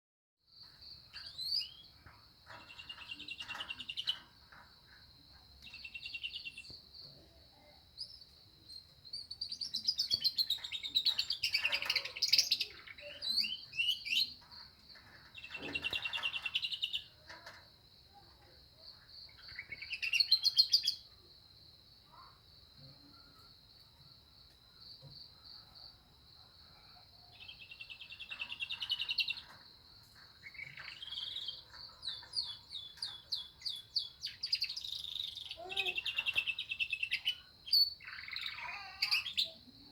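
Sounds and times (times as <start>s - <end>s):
canary singing: 5.6s - 6.7s, 9.1s - 17.6s, 19.3s - 21.0s, 27.3s - 39.6s.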